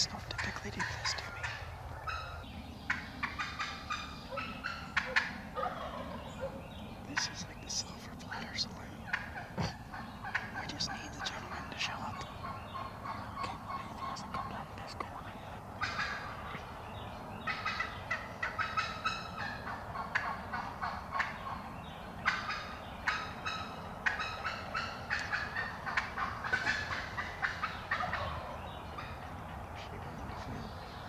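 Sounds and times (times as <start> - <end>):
wild turkeys gobbling: 0.0 - 7.6, 8.9 - 14.8, 15.4 - 31.0.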